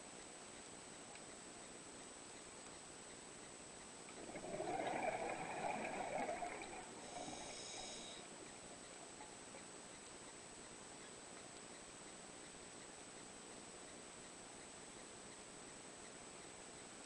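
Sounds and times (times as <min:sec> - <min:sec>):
bubbles from diver exhaling: 0:04.2 - 0:07.4.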